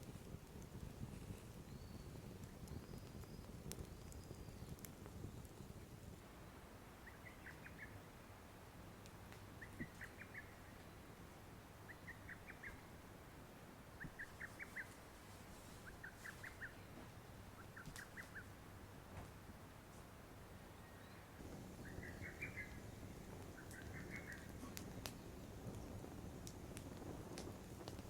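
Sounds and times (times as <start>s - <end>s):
bird calling faintly: 13.9s - 18.6s, 20.7s - 22.9s, 23.5s - 25.2s.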